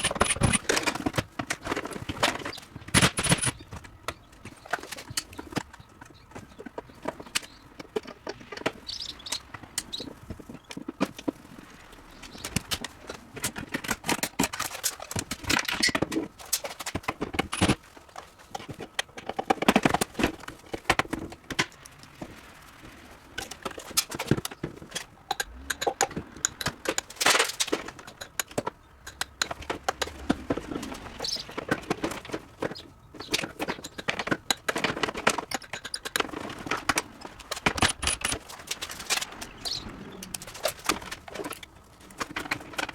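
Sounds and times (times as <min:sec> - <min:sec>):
objects knocking and clattering: 0:00.0 - 0:11.4, 0:12.3 - 0:22.4, 0:23.4 - 0:39.6, 0:40.4 - 0:42.9.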